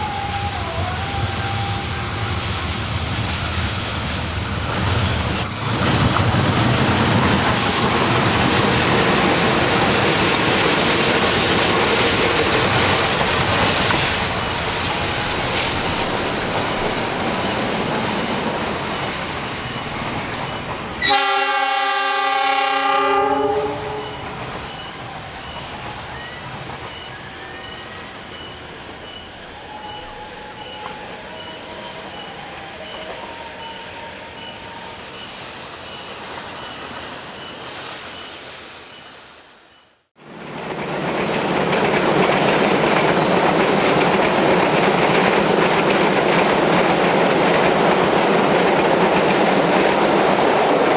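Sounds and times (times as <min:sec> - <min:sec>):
train rumbling past: 0:00.0 - 0:50.9
train wheels clattering over rail joints: 0:02.2 - 0:21.0, 0:40.6 - 0:50.9
locomotive horn blast: 0:21.0 - 0:24.3.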